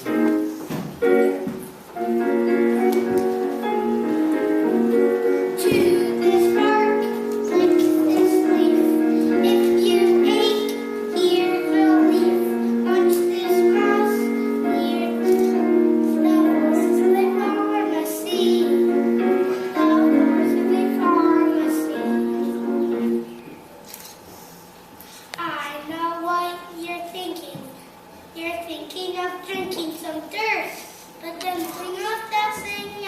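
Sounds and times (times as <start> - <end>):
piano accompaniment: 0.0 - 23.9.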